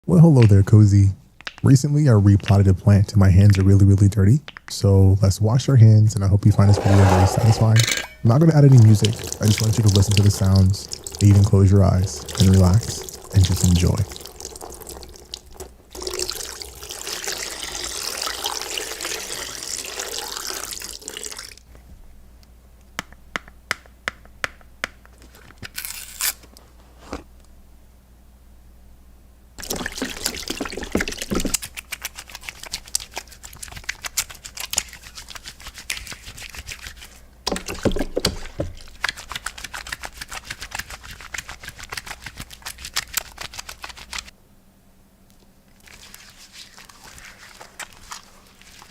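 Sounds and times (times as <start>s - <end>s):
wet hands rubbing: 6.6s - 7.8s, 8.7s - 14.7s, 29.6s - 44.3s, 45.7s - 48.9s
water splashing: 8.6s - 16.5s, 29.6s - 31.6s
tap water running: 8.6s - 21.6s, 29.6s - 31.6s.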